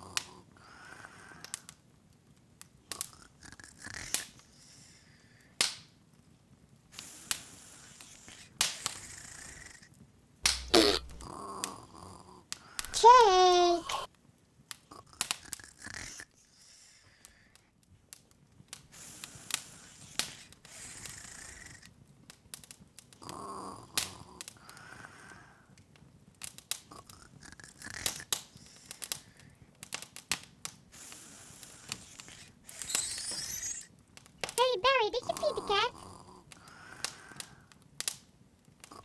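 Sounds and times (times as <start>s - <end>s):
wood fire crackling: 10.4s - 11.4s.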